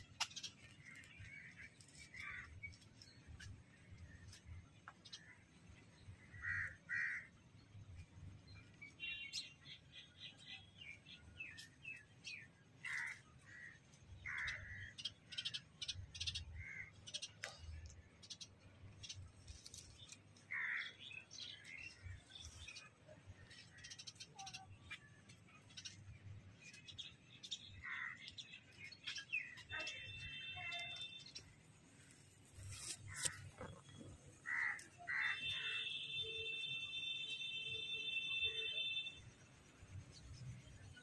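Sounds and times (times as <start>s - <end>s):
birds chirping: 0.0s - 41.0s
harsh bird calls: 32.7s - 39.2s.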